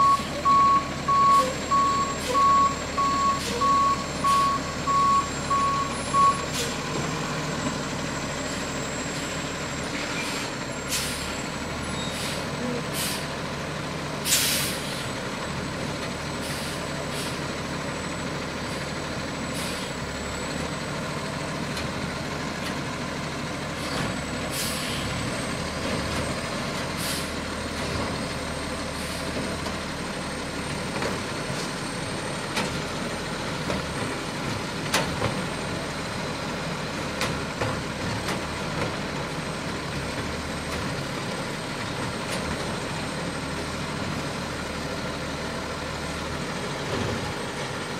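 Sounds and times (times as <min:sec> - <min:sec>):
diesel engine running: 0:00.0 - 0:47.9
air brake hisses: 0:10.1 - 0:11.4, 0:12.0 - 0:13.3, 0:14.2 - 0:15.1, 0:23.8 - 0:25.1, 0:27.0 - 0:27.4.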